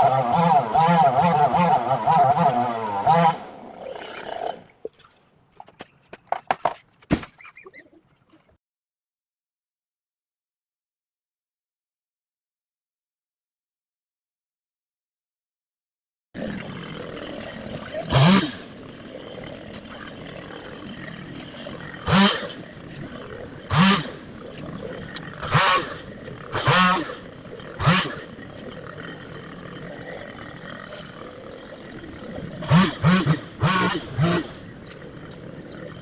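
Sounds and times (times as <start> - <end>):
chainsaw idling and revving: 0.0 - 4.7, 16.4 - 36.0.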